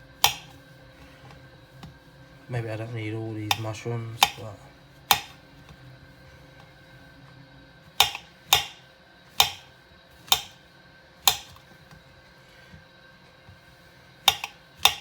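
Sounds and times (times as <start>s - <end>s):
knife slicing mushrooms: 0.2s - 1.2s, 3.4s - 5.8s, 7.9s - 10.6s, 11.2s - 11.7s, 14.3s - 15.0s.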